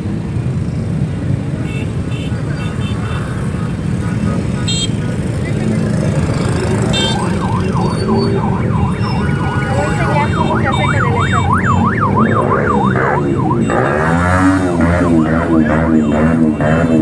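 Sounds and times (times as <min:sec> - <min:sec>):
engines rumbling: 0:00.0 - 0:17.0
electronic siren wailing: 0:06.3 - 0:17.0.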